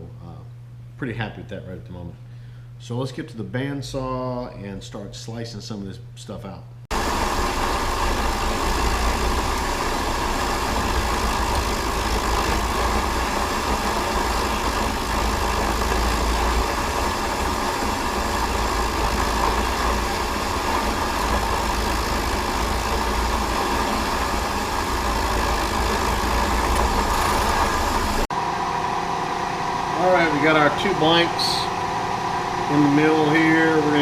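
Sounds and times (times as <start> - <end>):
bandsaw cutting metal: 7.6 - 28.3.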